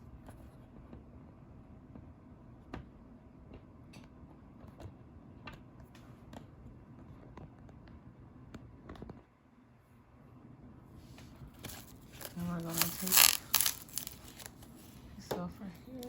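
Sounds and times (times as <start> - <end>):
faint plastic rustling: 11.0 - 16.0.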